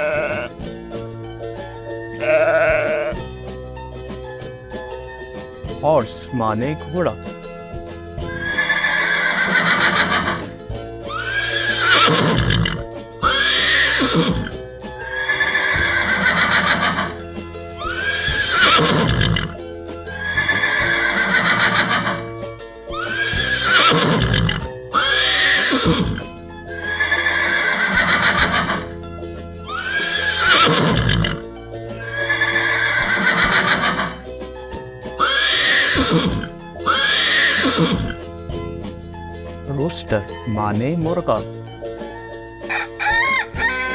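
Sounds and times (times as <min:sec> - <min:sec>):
horse neighing: 0:00.0 - 0:00.6, 0:02.1 - 0:03.2, 0:08.2 - 0:29.0, 0:29.6 - 0:34.2, 0:35.2 - 0:38.2, 0:42.7 - 0:43.9
background music: 0:00.0 - 0:43.9.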